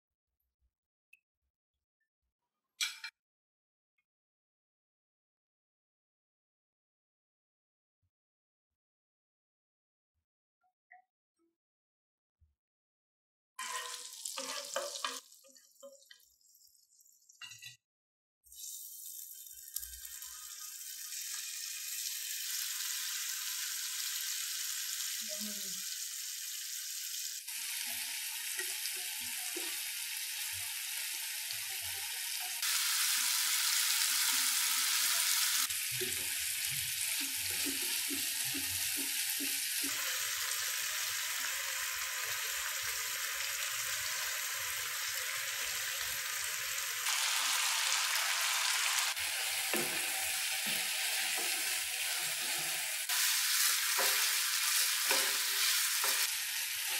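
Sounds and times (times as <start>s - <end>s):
chicken frying with sizzle: 13.6s - 17.6s, 18.5s - 56.9s.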